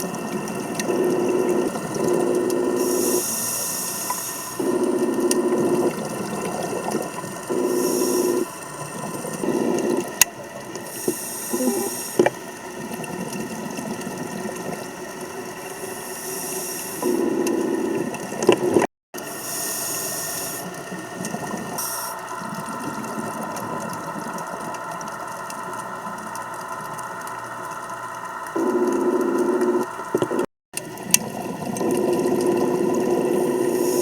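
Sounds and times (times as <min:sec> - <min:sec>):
exhaled bubbles underwater: 0:00.0 - 0:18.9, 0:19.5 - 0:34.0
scuba regulator hiss: 0:02.8 - 0:04.5, 0:07.5 - 0:08.5, 0:10.9 - 0:12.3, 0:15.8 - 0:17.2, 0:19.3 - 0:20.8, 0:21.8 - 0:22.2, 0:33.4 - 0:34.0.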